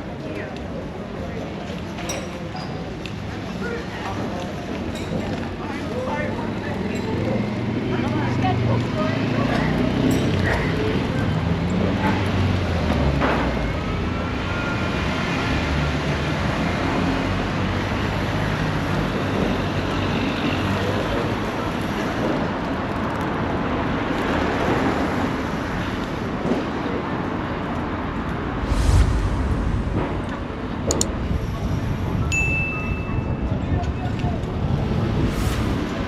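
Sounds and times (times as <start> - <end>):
vehicles passing: 27.0 - 32.3
low engine rumble: 27.9 - 32.3.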